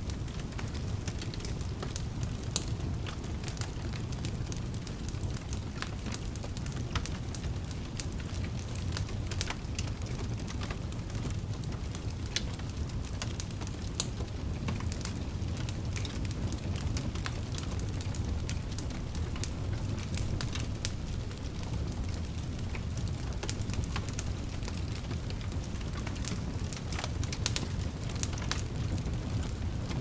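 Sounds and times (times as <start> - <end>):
fire flames rumbling: 0.0 - 30.0
logs crackling and popping: 0.0 - 30.0.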